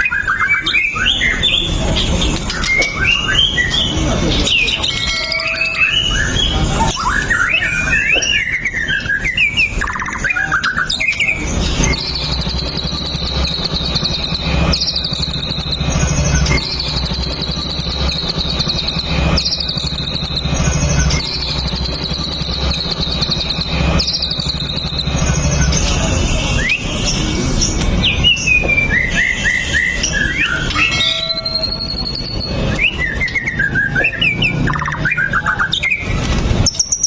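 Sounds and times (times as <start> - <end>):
bird singing whistled phrases: 2.5 - 25.8, 28.0 - 37.0
steady low hum: 9.1 - 33.2.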